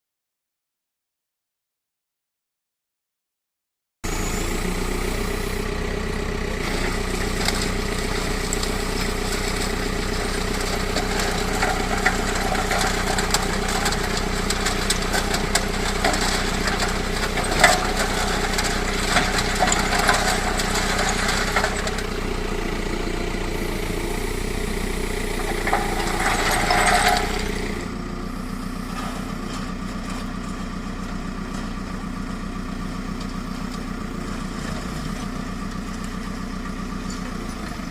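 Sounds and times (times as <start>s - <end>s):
diesel engine running: 4.0s - 37.9s
loud grinding burst: 6.6s - 29.3s
bucket crunching and rattling rubble: 6.6s - 30.8s.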